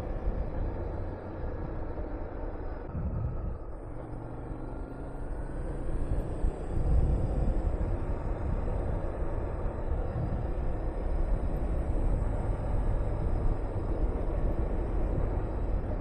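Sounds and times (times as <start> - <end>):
motorcycle engine running: 0.0 - 16.0
wind on microphone: 5.8 - 16.0.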